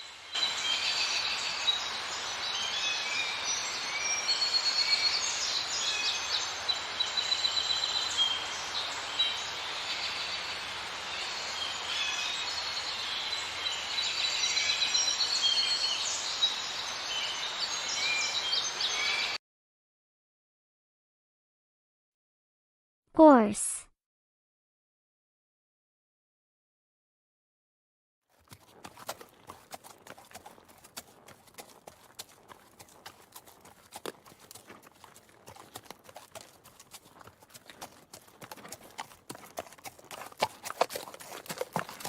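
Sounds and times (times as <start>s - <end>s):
steady outdoor hiss: 0.0s - 19.3s
birds chirping and trilling: 0.3s - 19.4s.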